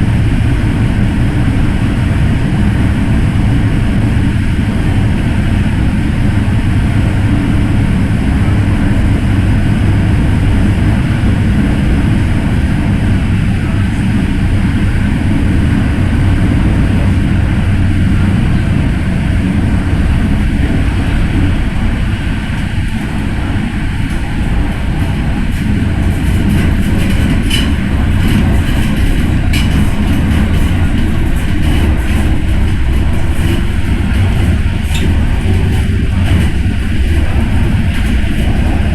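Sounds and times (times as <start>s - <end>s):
train wheels rumbling on rails: 0.0s - 38.9s
sharp clicks and rattles: 20.8s - 38.9s.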